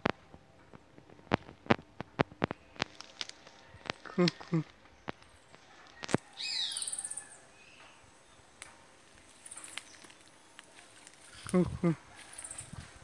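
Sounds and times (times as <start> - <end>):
bird chirping trill: 6.4 - 8.5.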